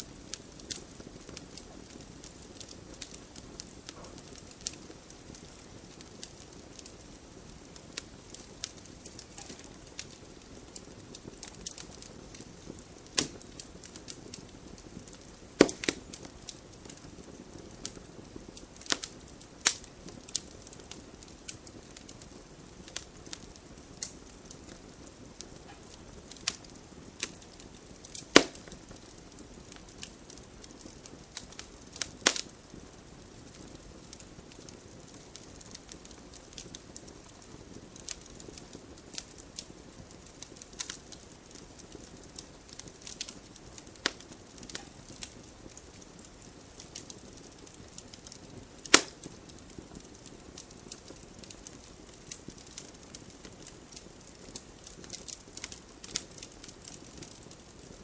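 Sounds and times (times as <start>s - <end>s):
burning logs popping: 0.0s - 58.0s
fire crackling: 0.0s - 58.0s.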